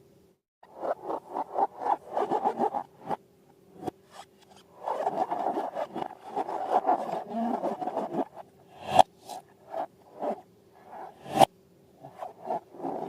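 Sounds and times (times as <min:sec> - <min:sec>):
rubbing slime and balloons: 0:04.8 - 0:09.0.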